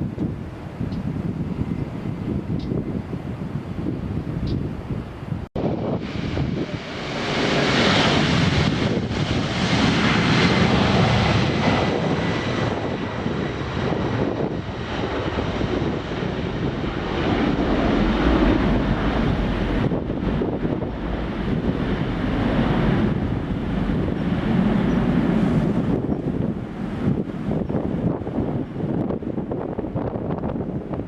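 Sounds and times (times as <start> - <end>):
airliner engine and airflow rush: 0.0 - 31.0.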